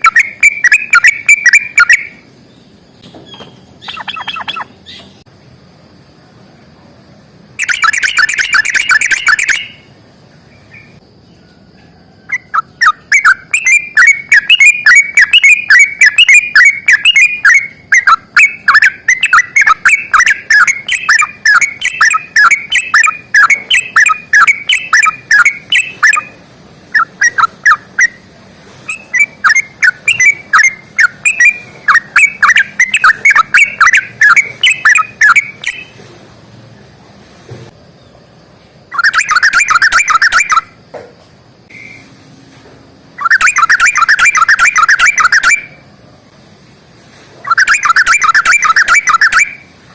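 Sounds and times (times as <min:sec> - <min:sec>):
bulbul singing: 0:00.0 - 0:05.3, 0:07.6 - 0:11.4, 0:12.3 - 0:36.0, 0:38.9 - 0:40.8, 0:43.2 - 0:45.9, 0:47.4 - 0:49.7.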